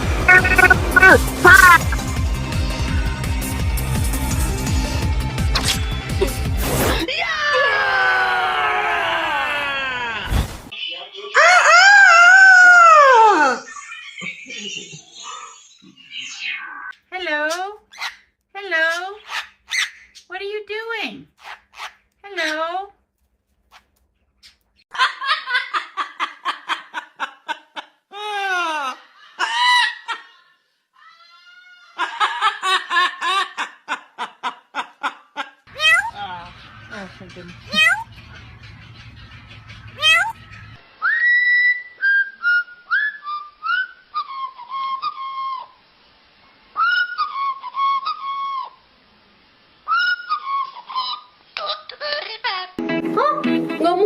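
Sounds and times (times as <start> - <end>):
high-pitched laughter: 0.3 - 2.0, 11.4 - 16.9, 24.9 - 36.1.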